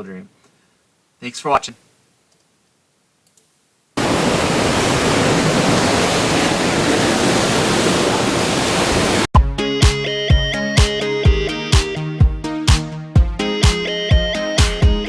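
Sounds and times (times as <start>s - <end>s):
sea water rushing: 4.0s - 9.3s
wind rushing: 4.0s - 9.3s
music: 9.4s - 15.0s.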